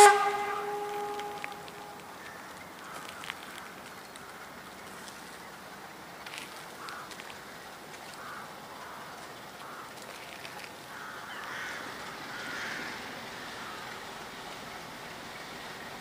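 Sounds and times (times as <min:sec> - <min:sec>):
bird calling: 0:00.0 - 0:05.3, 0:06.6 - 0:14.1
steady outdoor hum: 0:00.0 - 0:16.0.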